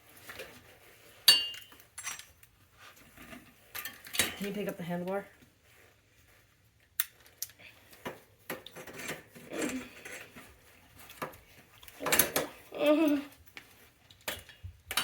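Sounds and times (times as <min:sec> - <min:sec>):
metal bike parts clinking: 0:01.2 - 0:02.5, 0:03.7 - 0:04.6.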